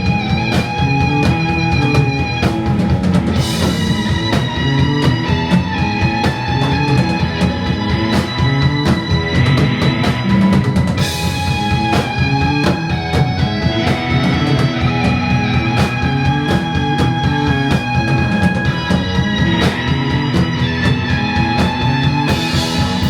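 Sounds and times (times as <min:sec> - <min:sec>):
rock band playing: 0:00.0 - 0:23.0.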